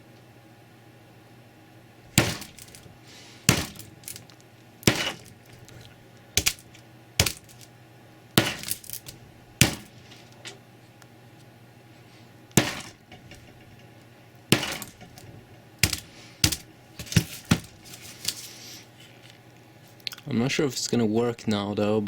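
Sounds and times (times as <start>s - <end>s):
sledgehammer striking phone: 2.1s - 5.7s, 6.4s - 7.7s, 8.4s - 10.1s, 12.5s - 13.6s, 14.5s - 17.9s.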